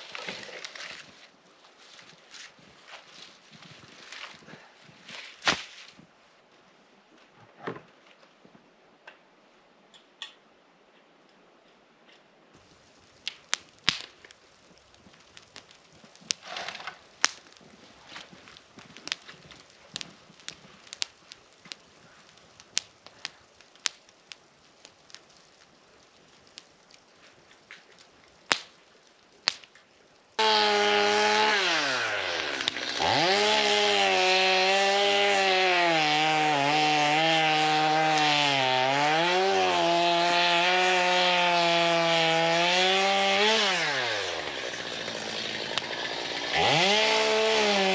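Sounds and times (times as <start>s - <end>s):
chainsaw cutting logs: 0.0s - 1.1s, 16.2s - 17.6s, 30.4s - 47.9s.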